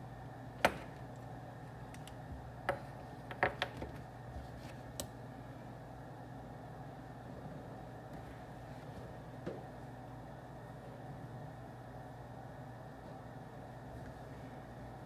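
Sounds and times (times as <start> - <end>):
low room hum: 0.0 - 15.0
desk work clicks and taps: 1.9 - 4.0.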